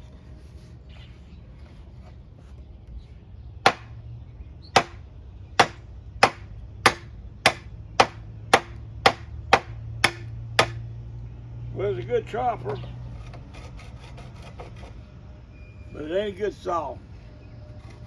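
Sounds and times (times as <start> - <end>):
knife chopping strikes: 3.7 - 3.9, 4.8 - 5.0, 5.6 - 10.8.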